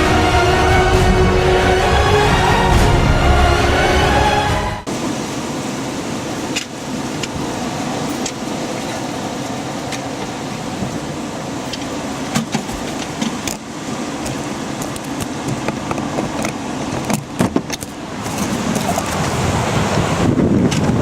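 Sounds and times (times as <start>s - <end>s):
strong storm wind rushing: 0.0s - 21.0s.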